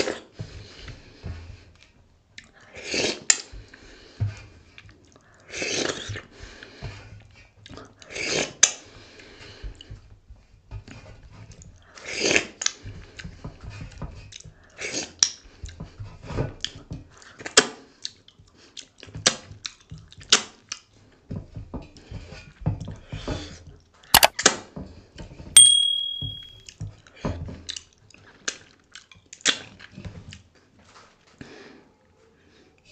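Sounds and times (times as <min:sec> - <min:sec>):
short high-pitched tone: 0:25.6 - 0:26.6.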